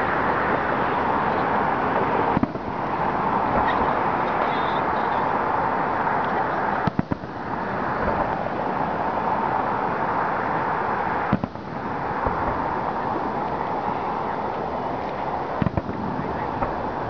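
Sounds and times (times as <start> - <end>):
steady background hiss: 0.0 - 17.0
distant fireworks bang: 2.3 - 5.3, 6.8 - 8.4, 11.2 - 13.0, 15.6 - 17.0.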